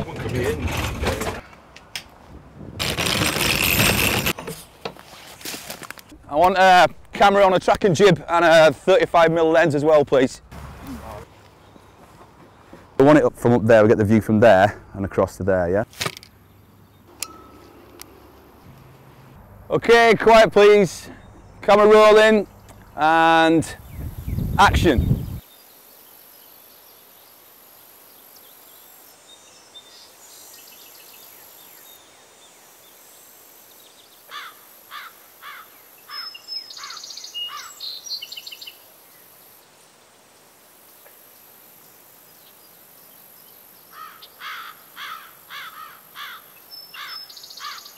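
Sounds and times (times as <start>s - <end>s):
small birds chirping and trilling: 20.8s - 33.0s, 33.6s - 39.6s, 40.9s - 47.9s
faint high hiss: 21.7s - 45.5s.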